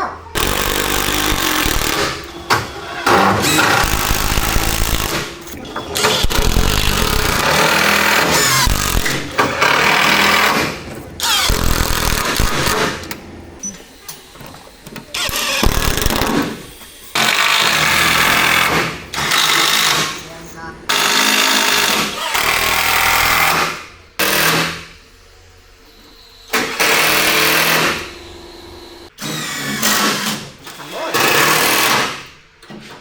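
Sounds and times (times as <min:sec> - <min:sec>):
power tool cutting wood: 0:06.0 - 0:12.9.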